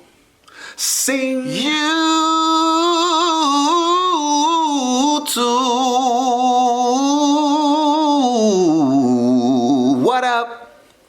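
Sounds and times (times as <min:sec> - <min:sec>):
sharp intake of breath: 0:00.4 - 0:00.8
person singing unaccompanied: 0:00.8 - 0:10.2.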